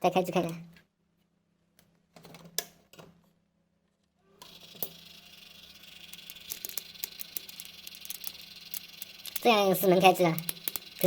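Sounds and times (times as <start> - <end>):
computer fans whirring: 4.5 - 11.0
small clicks: 6.1 - 11.0.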